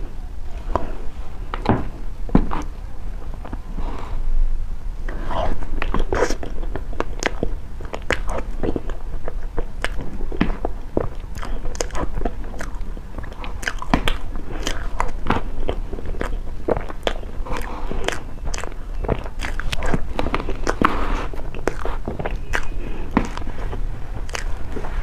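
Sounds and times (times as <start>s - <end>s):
chewing cake: 2.4s - 4.1s, 5.1s - 25.0s
mouth clicks: 5.1s - 25.0s.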